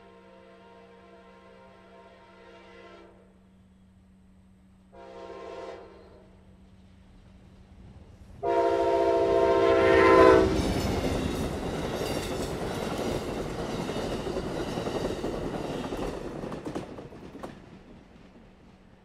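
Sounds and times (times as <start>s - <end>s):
locomotive air horn: 0.0s - 3.4s, 4.9s - 6.4s, 8.4s - 10.6s
train passing with wheel clatter: 0.0s - 19.0s.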